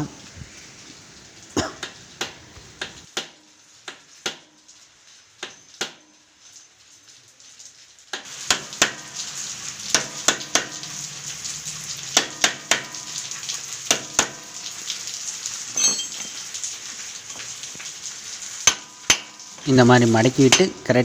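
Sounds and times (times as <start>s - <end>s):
low hum and hiss: 0.0s - 3.1s, 19.6s - 21.0s.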